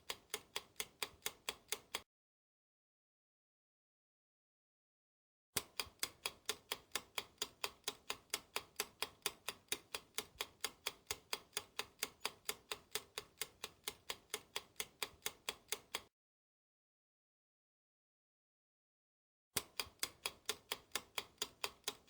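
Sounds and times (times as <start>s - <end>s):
clock ticking: 0.0s - 2.0s, 5.6s - 16.1s, 19.6s - 22.0s.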